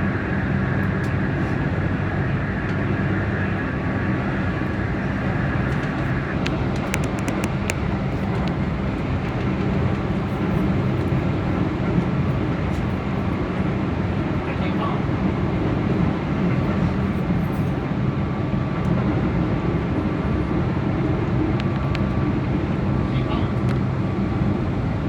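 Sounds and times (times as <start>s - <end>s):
electric train rumbling: 0.0s - 25.0s
sharp clicks: 6.4s - 7.8s.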